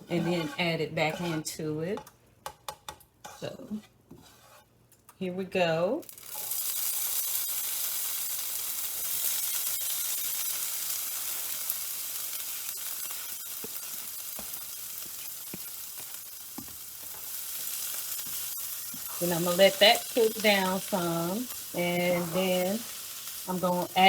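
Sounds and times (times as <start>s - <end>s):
peppers sizzling in a pan: 6.0s - 24.0s.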